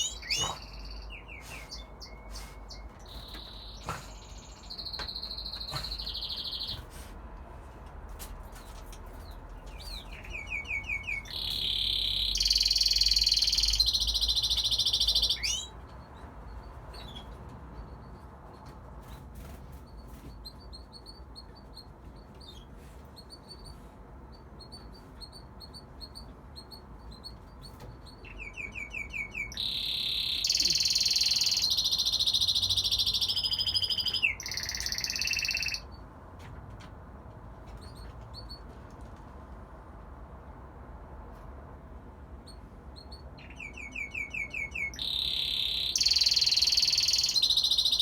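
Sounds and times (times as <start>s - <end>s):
canary chirping softly: 0.0s - 7.0s, 8.1s - 39.6s, 42.4s - 48.0s
canary trilling song: 0.0s - 7.0s, 8.4s - 36.2s, 37.6s - 38.7s, 42.4s - 48.0s.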